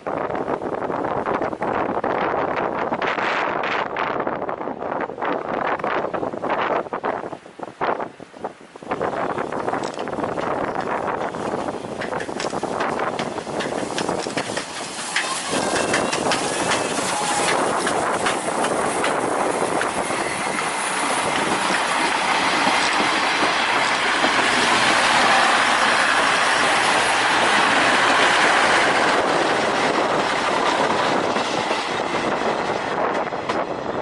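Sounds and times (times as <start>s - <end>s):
wheels clattering on rails: 9.5s - 34.0s
steam train running past: 10.3s - 34.0s.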